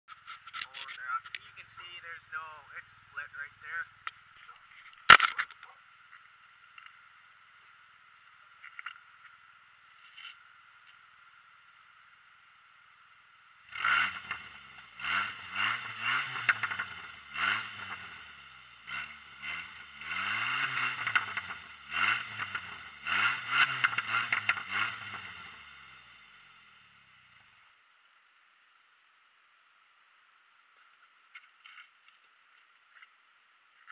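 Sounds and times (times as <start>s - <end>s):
car engine turning over: 13.6s - 27.5s.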